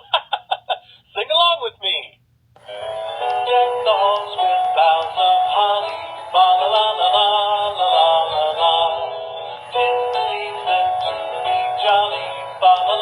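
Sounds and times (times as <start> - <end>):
toy speaker playing sung song: 2.6 - 13.0.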